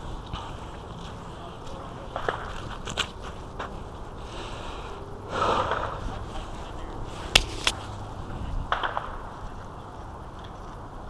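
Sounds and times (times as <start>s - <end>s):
outdoor background noise: 0.0s - 11.0s
sharp cracks: 2.0s - 3.2s, 5.3s - 6.2s, 7.3s - 7.8s, 8.7s - 9.6s.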